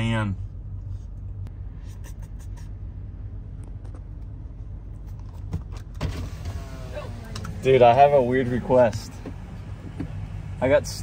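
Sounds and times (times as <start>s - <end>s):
car idling low hum: 0.0s - 11.0s.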